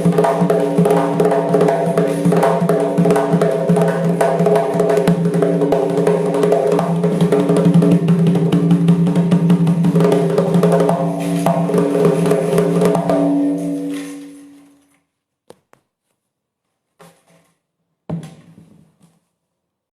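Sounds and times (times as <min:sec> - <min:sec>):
frame drum with jingles: 0:00.0 - 0:14.7.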